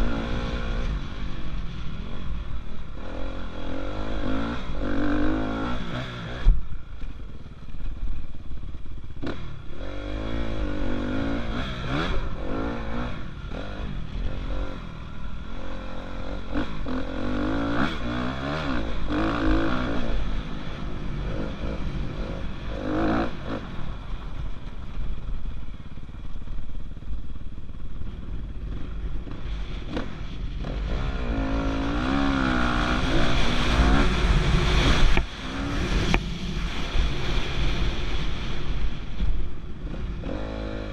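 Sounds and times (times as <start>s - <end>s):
dirt bike engine revving: 2.9s - 6.6s, 9.1s - 24.1s, 28.5s - 38.8s, 39.8s - 40.9s.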